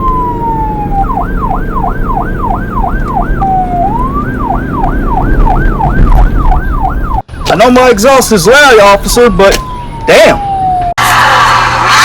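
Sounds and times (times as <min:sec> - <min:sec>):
car engine rumbling: 0:00.0 - 0:07.4
police siren wailing and yelping: 0:00.0 - 0:12.0.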